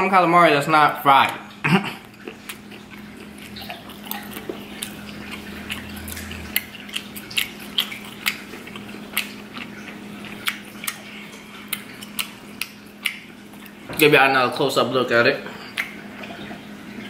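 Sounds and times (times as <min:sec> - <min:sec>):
steady low hum: 0:01.6 - 0:17.0
chewing with wet mouth clicks: 0:02.0 - 0:14.1, 0:15.6 - 0:16.6.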